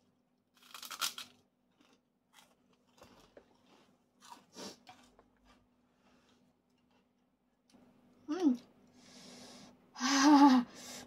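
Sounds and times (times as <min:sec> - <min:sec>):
person crunching food: 0:00.5 - 0:05.7.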